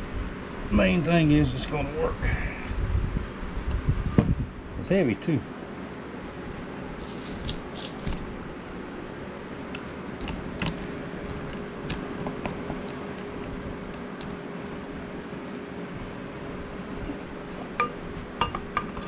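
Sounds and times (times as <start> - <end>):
metallic clicks of vise parts: 7.0 - 8.4.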